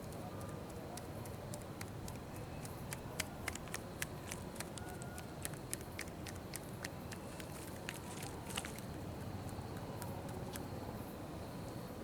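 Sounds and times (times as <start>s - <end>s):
low outdoor background: 0.0s - 12.0s
hands slapping skin: 1.0s - 8.0s.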